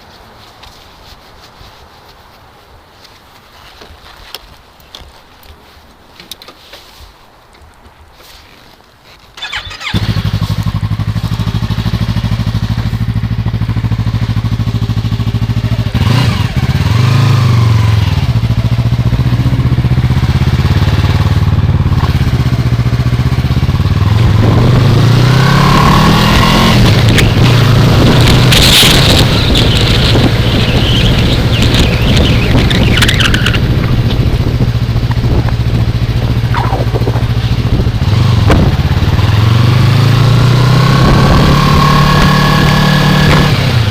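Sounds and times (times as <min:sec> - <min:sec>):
motorcycle engine starting and idling: 0:09.4 - 0:24.8, 0:25.4 - 0:43.9
throttle blip revving: 0:36.4 - 0:37.7.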